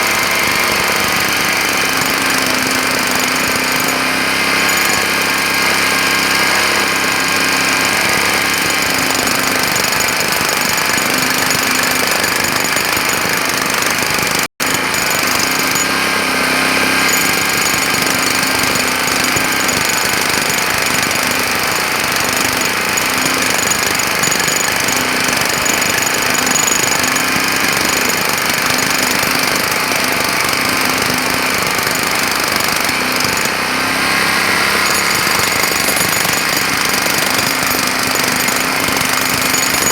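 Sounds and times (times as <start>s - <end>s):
jackhammer hammering: 0.0s - 39.9s.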